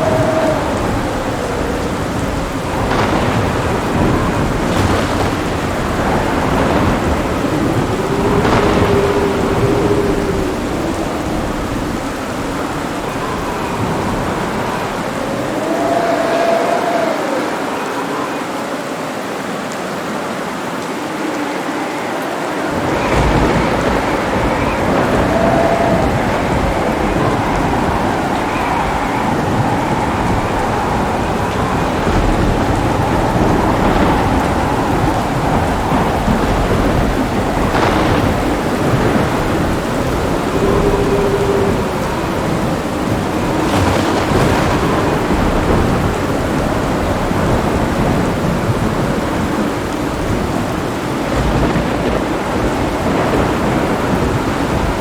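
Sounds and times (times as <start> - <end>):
rolling thunder: 0.0 - 18.4, 20.7 - 55.0
heavy rain: 0.0 - 55.0.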